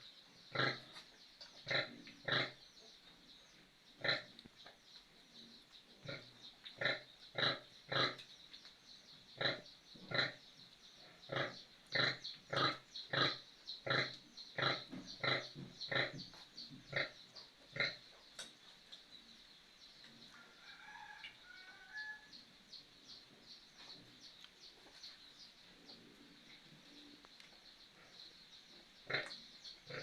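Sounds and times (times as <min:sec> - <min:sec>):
faint bird chirps: 0:00.0 - 0:30.0
pig grunting: 0:06.1 - 0:08.2, 0:11.3 - 0:16.2.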